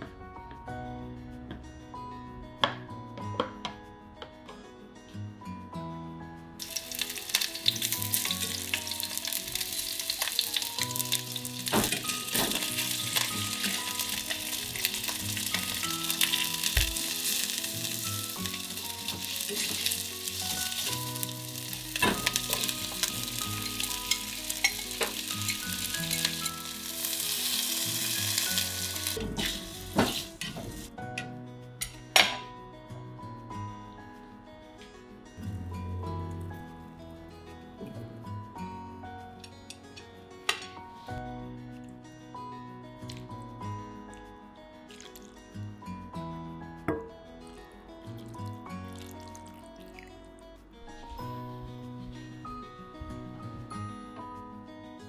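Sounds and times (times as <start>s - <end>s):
food sizzling in a pot: 6.6s - 31.0s, 44.9s - 45.5s, 48.2s - 50.2s.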